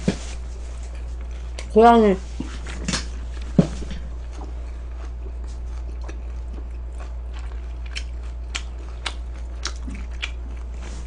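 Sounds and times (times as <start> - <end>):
low steady hum: 0.0 - 11.0
person chewing food: 0.7 - 1.7, 2.4 - 11.0.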